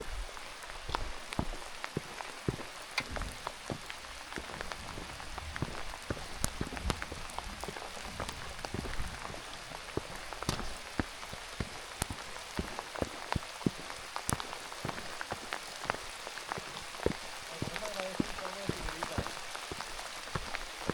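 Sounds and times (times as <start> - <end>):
raindrops hitting close by: 0.0 - 20.9
steady rain falling: 0.0 - 20.9.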